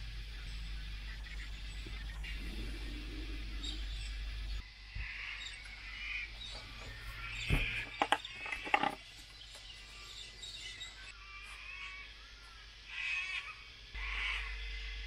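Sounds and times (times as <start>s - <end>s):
birds chirping and calling: 0.0s - 15.0s
sharp clicks and knocks: 6.5s - 9.7s.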